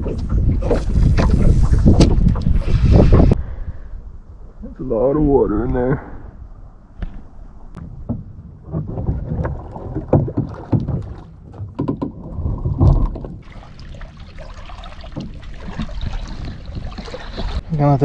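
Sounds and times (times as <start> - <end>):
hollow knocks of kayak: 7.8 - 13.5
water pouring out: 12.5 - 17.6.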